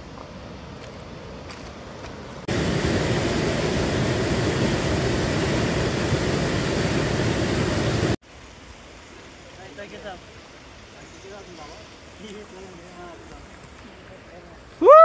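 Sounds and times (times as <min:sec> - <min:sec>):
waterfall rushing: 0:02.4 - 0:13.2.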